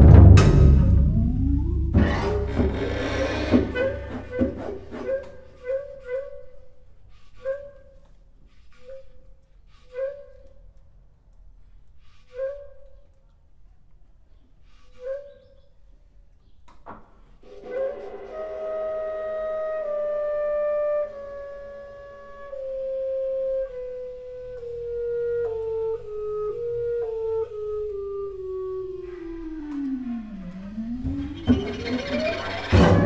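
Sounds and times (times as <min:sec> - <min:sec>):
chamber ensemble held tone: 0:00.0 - 0:05.1, 0:28.6 - 0:33.0.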